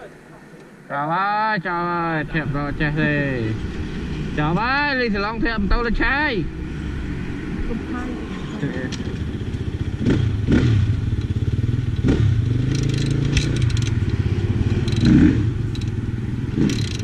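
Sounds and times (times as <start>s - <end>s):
motorcycle engine revving: 1.9s - 17.0s
rattling clatter: 11.1s - 16.0s, 16.6s - 17.0s.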